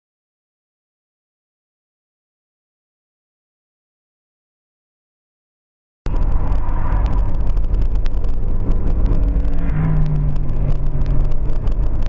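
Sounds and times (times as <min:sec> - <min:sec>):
car engine and road noise: 0:06.1 - 0:12.0.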